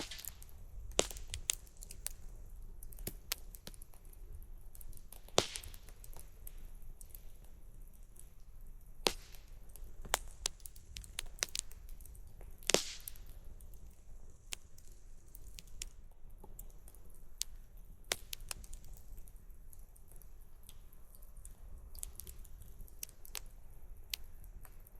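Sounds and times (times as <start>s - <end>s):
campfire crackling and popping: 0.0s - 24.9s.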